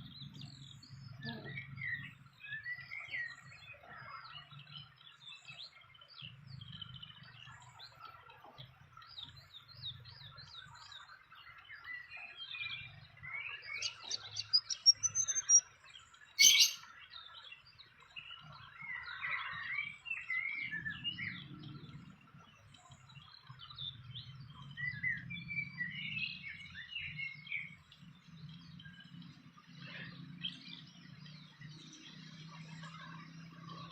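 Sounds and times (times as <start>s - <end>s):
small birds chirping: 8.9s - 33.9s.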